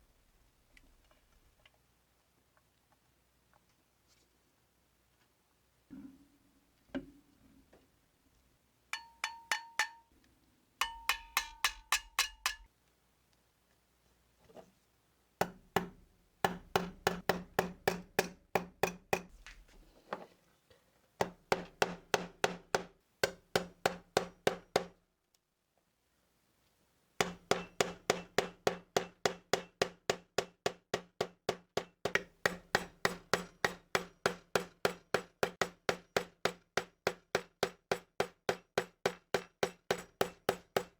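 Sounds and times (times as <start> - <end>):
hammer tapping on metal: 9.0 - 10.1, 10.8 - 12.7, 15.4 - 19.3, 27.2 - 40.9.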